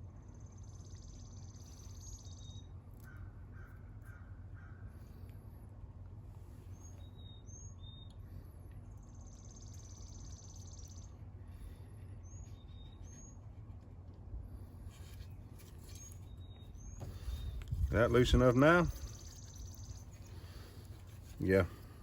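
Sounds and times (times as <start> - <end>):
low steady rumble: 0.0 - 22.0
buzzy bird trill: 15.6 - 21.4.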